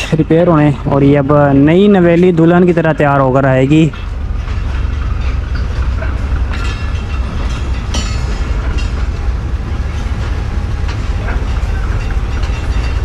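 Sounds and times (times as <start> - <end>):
train coaches rumbling on rails: 0.0 - 13.0
wheels squealing: 3.7 - 13.0.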